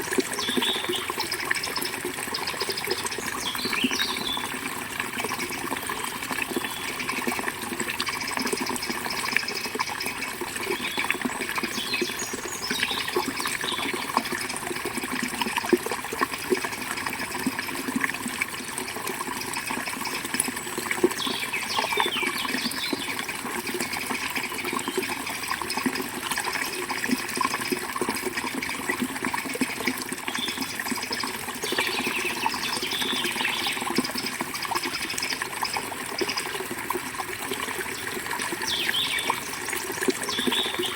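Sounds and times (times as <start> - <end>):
small birds chirping: 0.4 - 4.5, 8.2 - 14.1, 19.4 - 23.2, 30.3 - 34.3, 38.0 - 39.6, 40.2 - 40.9.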